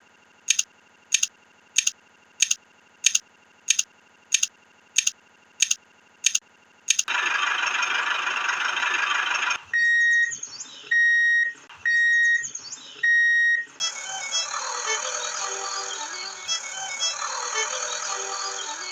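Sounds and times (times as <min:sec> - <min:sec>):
sharp ticks: 0:00.5 - 0:07.1.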